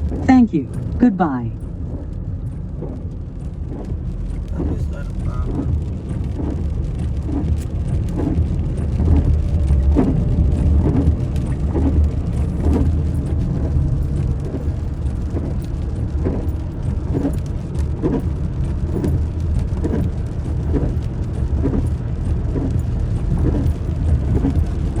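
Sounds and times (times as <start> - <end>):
rain: 0.0 - 25.0
vehicle rumbling on wet road: 0.0 - 25.0.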